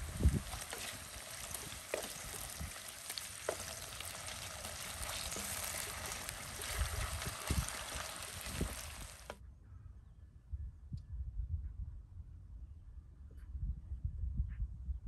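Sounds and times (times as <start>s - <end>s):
food sizzling in hot oil: 0.0s - 9.4s.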